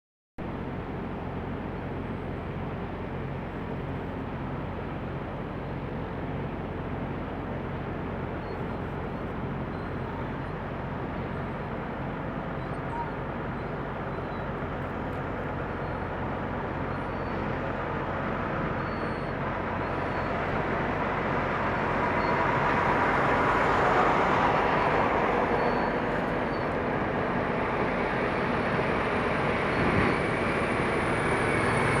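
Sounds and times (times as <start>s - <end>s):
diesel truck engine humming: 7.9s - 32.0s.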